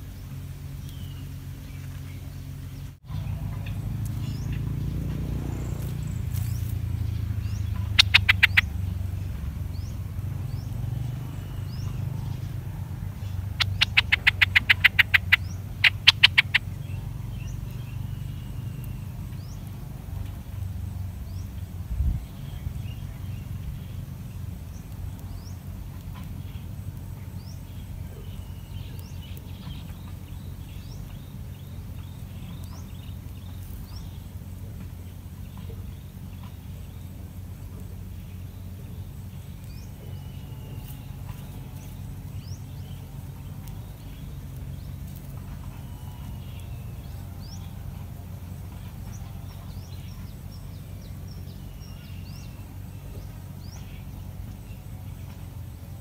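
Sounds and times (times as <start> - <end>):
birds chirping: 0.0 - 56.0
steady low rumble: 0.0 - 56.0
sharp clicking notes: 7.6 - 8.8.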